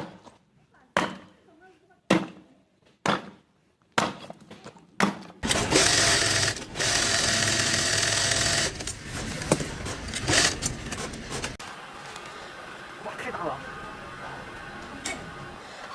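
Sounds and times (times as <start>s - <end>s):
small motor tool running: 5.4s - 11.6s.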